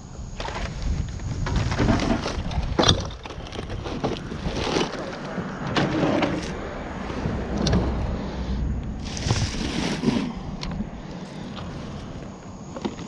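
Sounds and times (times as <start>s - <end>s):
plastic clattering and cracking: 0.4s - 6.6s.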